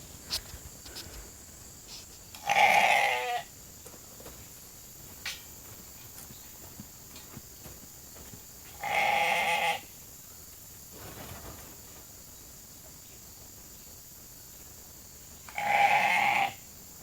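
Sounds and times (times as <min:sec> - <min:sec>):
sheep bleating: 0:02.4 - 0:03.5, 0:08.8 - 0:09.9, 0:15.5 - 0:16.6.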